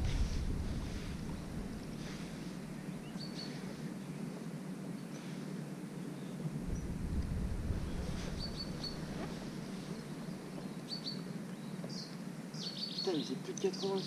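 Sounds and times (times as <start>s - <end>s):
wind on microphone: 0.0s - 3.3s, 6.4s - 10.9s
small bird chirping: 2.8s - 4.2s, 7.8s - 14.0s.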